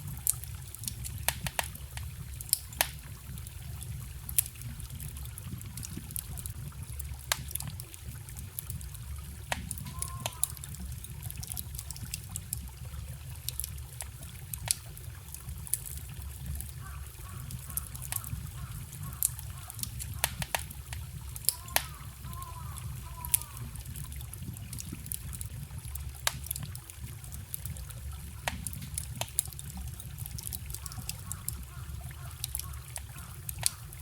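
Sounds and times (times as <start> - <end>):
trickling forest stream: 0.0 - 34.0
wood fire crackling and popping: 0.0 - 34.0.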